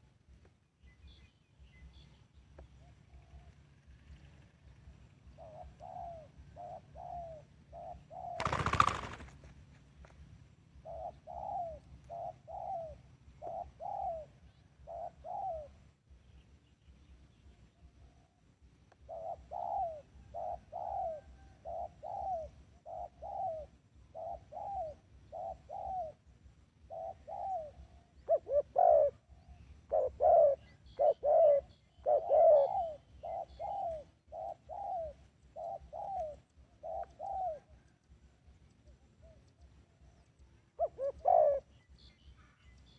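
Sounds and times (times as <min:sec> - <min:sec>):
dove cooing: 0:05.2 - 0:09.4, 0:10.8 - 0:15.8, 0:19.0 - 0:38.1, 0:38.8 - 0:41.9.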